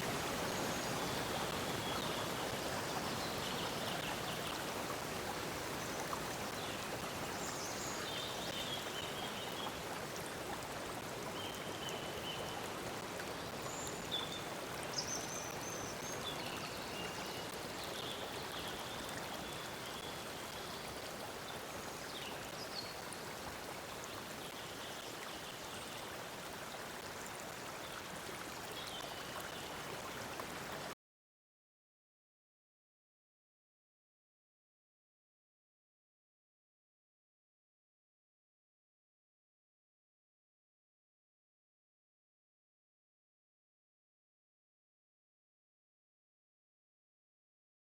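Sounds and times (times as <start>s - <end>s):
flowing stream rushing: 0.0s - 7.9s.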